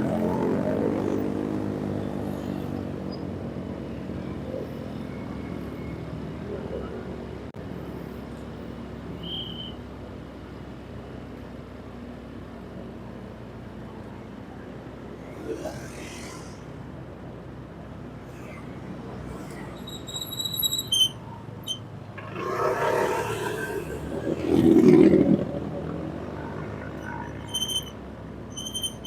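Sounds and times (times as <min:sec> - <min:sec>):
traffic noise: 0:00.0 - 0:29.0
vehicle engine running: 0:21.0 - 0:29.0.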